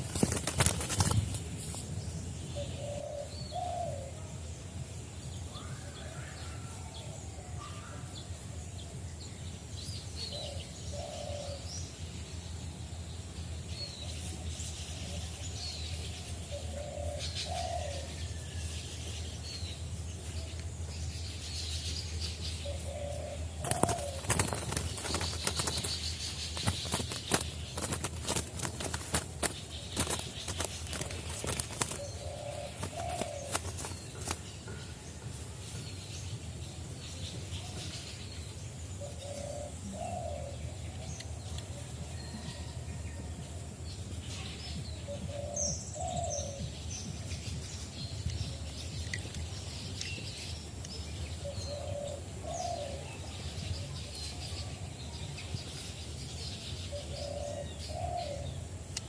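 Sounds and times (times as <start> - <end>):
sharp rustles: 0.0 - 2.0, 23.6 - 34.6
small birds chirping: 0.0 - 59.0
dove cooing: 2.6 - 4.2, 10.3 - 11.7, 16.5 - 18.2, 22.6 - 34.4, 39.0 - 40.5, 45.1 - 46.6, 51.4 - 53.1, 56.9 - 58.5.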